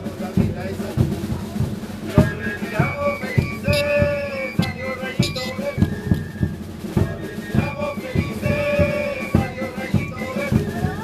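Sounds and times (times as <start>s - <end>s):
drums beating steady rhythm: 0.0s - 11.0s
flute playing held notes: 2.0s - 11.0s.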